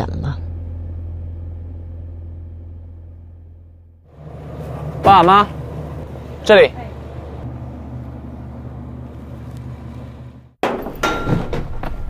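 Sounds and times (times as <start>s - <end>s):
car engine idling: 0.0s - 10.6s
door clunks and knocks: 10.6s - 12.0s.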